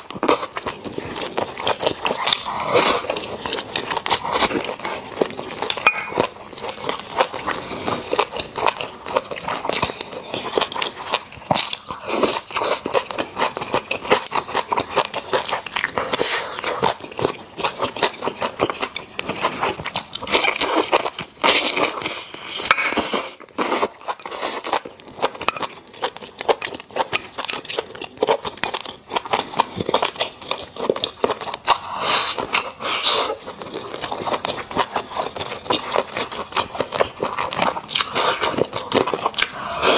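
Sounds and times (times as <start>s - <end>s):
mouth chewing food: 0.0s - 39.9s.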